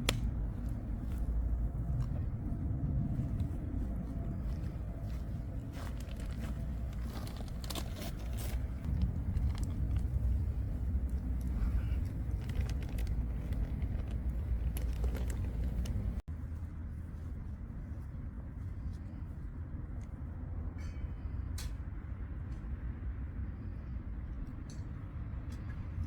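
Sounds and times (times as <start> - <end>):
campfire crackling: 5.0 - 16.2.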